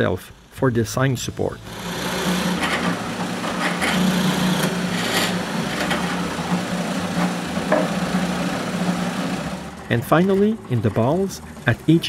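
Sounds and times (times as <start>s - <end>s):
electric drill boring into wood: 1.6s - 9.9s.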